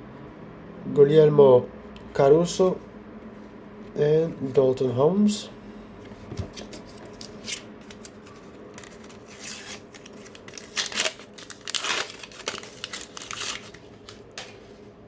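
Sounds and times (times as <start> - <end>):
paper wrapper tearing and crinkling: 7.1 - 14.5.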